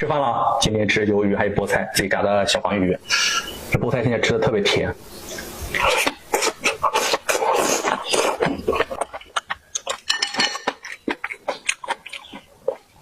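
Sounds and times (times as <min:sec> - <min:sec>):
utensils clinking against dishes: 0:09.8 - 0:11.0.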